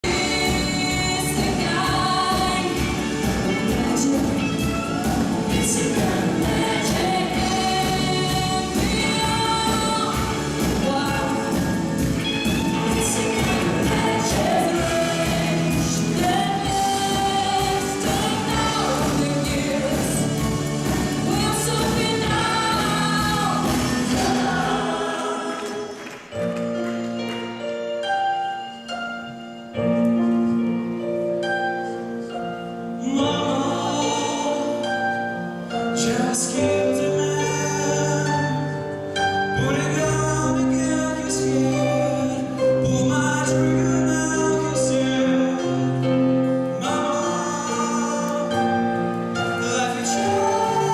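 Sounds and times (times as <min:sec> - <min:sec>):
vocal ensemble singing in harmony: 0:00.0 - 0:26.5, 0:33.0 - 0:50.9
live band with drums: 0:00.0 - 0:26.8.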